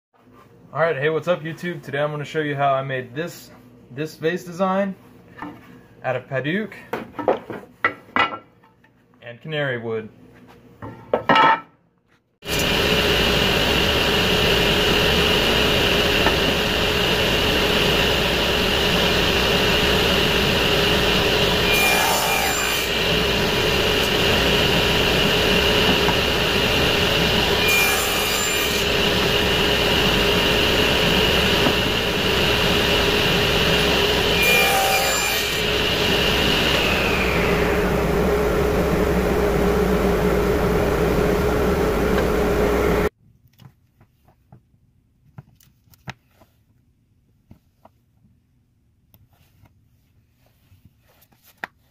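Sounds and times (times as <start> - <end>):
power tool cutting wood: 12.4 - 43.1.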